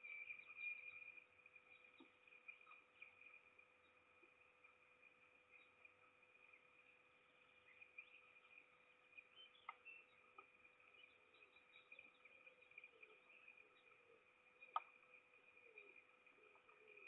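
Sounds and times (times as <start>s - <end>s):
drop ticks: 14.6s - 15.2s.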